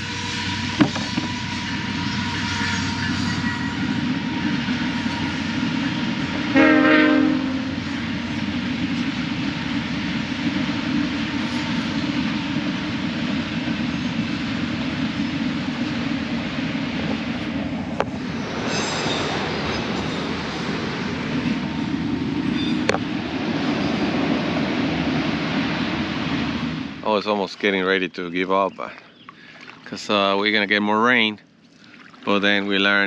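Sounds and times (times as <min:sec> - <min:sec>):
train horn blast: 0:00.0 - 0:08.0
freight train rumbling past: 0:00.0 - 0:31.6, 0:32.3 - 0:33.0.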